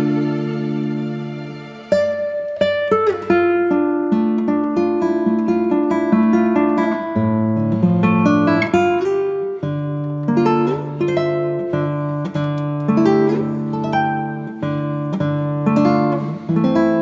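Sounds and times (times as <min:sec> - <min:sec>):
acoustic guitar plucked chords: 0:00.0 - 0:17.0.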